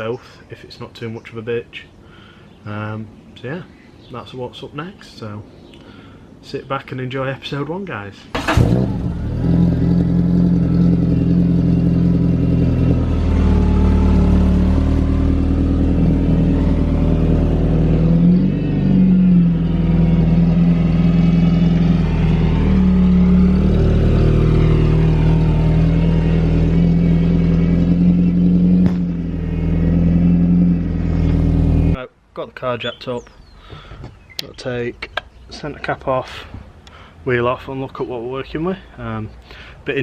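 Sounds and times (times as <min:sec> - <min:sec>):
car engine running: 0:08.4 - 0:32.0.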